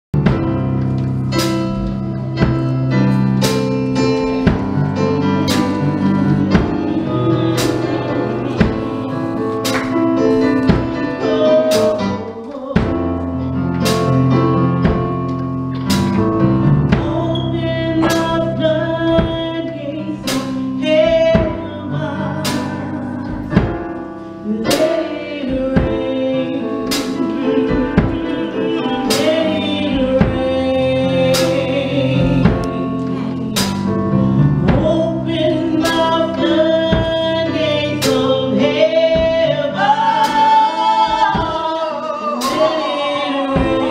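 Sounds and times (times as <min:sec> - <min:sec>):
keyboard bass and drums: 0:00.1 - 0:41.7
voices singing: 0:05.0 - 0:13.3, 0:24.5 - 0:33.9, 0:34.6 - 0:43.9.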